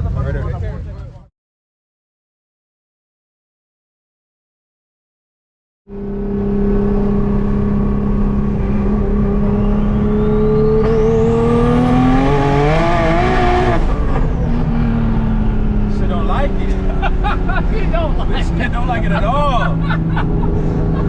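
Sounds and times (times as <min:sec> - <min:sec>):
turbo whine rising in pitch: 0:05.9 - 0:15.7
car engine at full throttle: 0:05.9 - 0:21.0.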